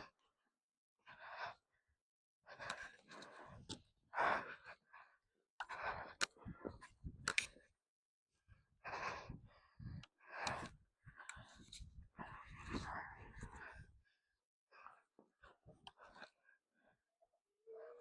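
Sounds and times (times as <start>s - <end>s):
person breathing hard: 8.8s - 14.3s.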